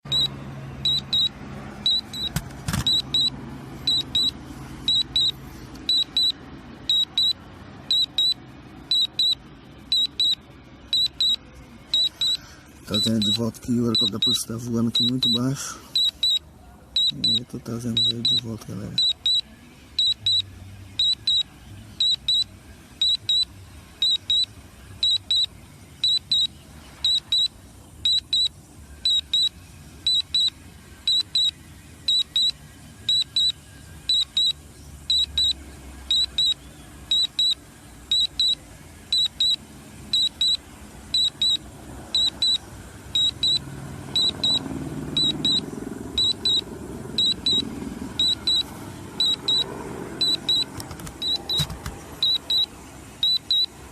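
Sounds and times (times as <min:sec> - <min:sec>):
high double beep alarm: 0:00.1 - 0:01.3, 0:01.9 - 0:02.3, 0:02.9 - 0:03.3, 0:03.9 - 0:15.4, 0:16.0 - 0:16.4, 0:17.0 - 0:18.4, 0:19.0 - 0:19.4, 0:20.0 - 0:20.4, 0:21.0 - 0:21.4, 0:22.0 - 0:22.4, 0:23.0 - 0:27.5, 0:28.1 - 0:29.5, 0:30.1 - 0:30.5, 0:31.1 - 0:31.5, 0:32.1 - 0:40.6, 0:41.2 - 0:41.6, 0:42.2 - 0:42.6, 0:43.2 - 0:43.6, 0:44.2 - 0:44.6, 0:45.2 - 0:45.6, 0:46.2 - 0:46.6, 0:47.2 - 0:53.8.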